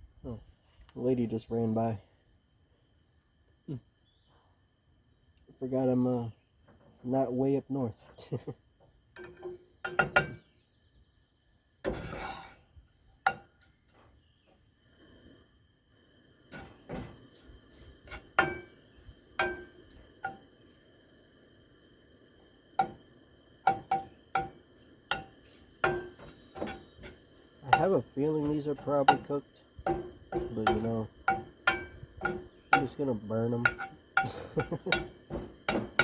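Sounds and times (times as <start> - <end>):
utensil scraping frying pan: 11.8 - 13.8, 16.5 - 20.5, 22.8 - 23.0, 23.6 - 36.0.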